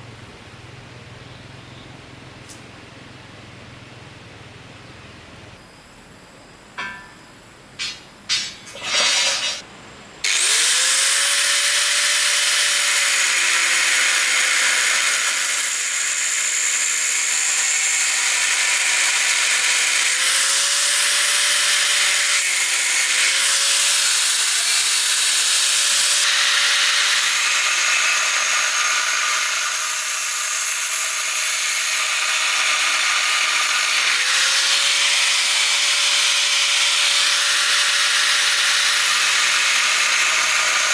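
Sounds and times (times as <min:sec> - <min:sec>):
electric power tool whining: 0:10.2 - 0:40.9.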